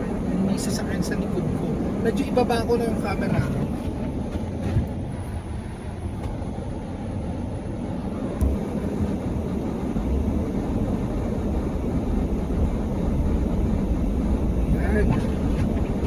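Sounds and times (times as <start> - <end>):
engine and tyres rumbling: 0.0 - 16.0.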